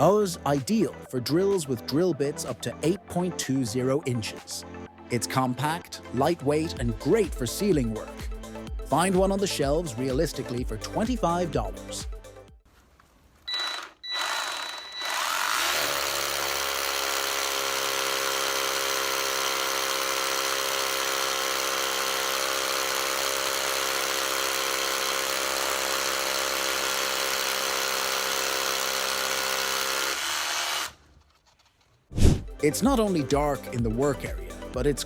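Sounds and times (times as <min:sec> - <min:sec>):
small electric motor running: 0:13.5 - 0:31.0.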